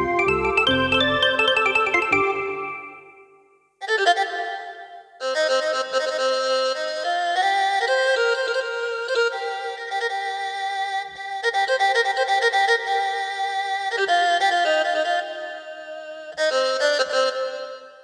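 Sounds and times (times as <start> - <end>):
keyboard violin-like melody: 0.0 - 6.5.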